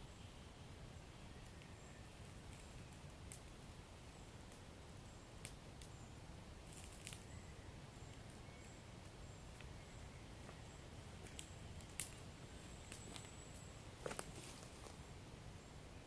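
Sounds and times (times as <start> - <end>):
fire crackling and popping: 5.4 - 6.0, 6.6 - 7.3, 11.2 - 14.3.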